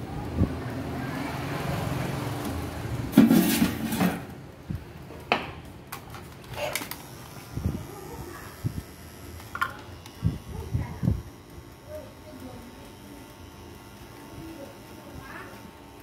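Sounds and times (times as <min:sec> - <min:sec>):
objects clattering: 0:03.1 - 0:04.4
hard objects knocking and clicking: 0:09.5 - 0:09.8.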